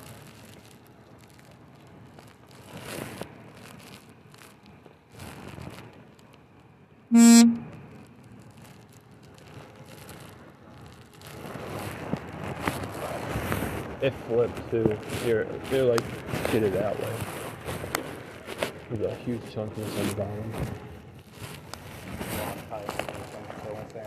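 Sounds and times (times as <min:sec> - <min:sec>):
short vehicle horn toot: 0:07.1 - 0:07.7
rustling and handling noise: 0:11.2 - 0:19.2, 0:19.8 - 0:24.0.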